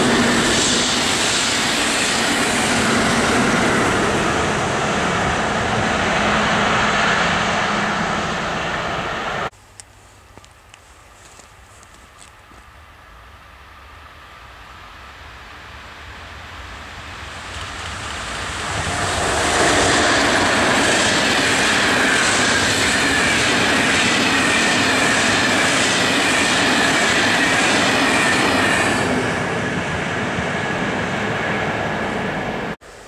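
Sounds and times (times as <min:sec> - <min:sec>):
freight train rolling: 0:00.0 - 0:09.5, 0:13.6 - 0:32.8
high falling whine: 0:16.0 - 0:23.8.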